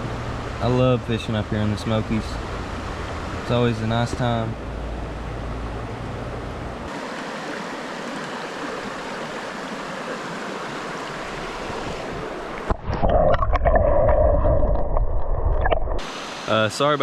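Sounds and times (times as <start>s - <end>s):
river water rushing: 0.0s - 12.8s, 15.8s - 17.0s
muffled underwater rumbling: 11.2s - 16.0s.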